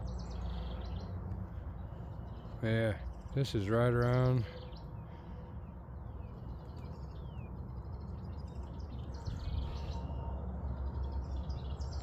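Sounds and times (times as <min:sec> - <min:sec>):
steady low rumble: 0:00.0 - 0:12.0
wild birds singing and chirping: 0:00.0 - 0:12.0.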